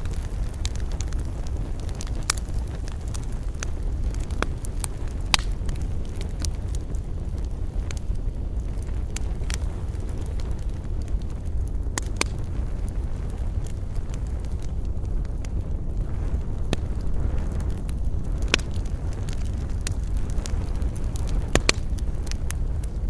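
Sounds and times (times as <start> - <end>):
campfire crackling and popping: 0.0 - 23.0
steady low rumble: 0.0 - 23.0.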